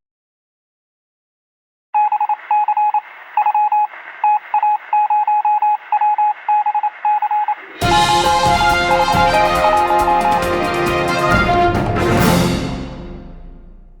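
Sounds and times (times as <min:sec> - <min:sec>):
electronic beeps: 0:02.0 - 0:10.5
loud music: 0:07.8 - 0:14.0.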